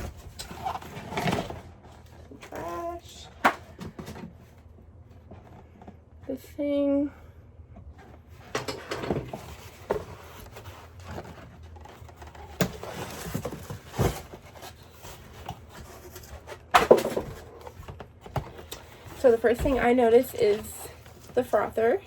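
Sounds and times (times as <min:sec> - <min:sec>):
packaging rustling: 0:09.3 - 0:21.6.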